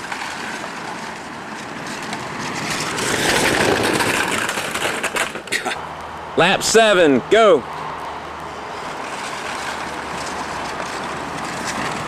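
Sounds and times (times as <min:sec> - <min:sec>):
model cars rattling on track: 0:00.0 - 0:05.8, 0:08.8 - 0:12.0.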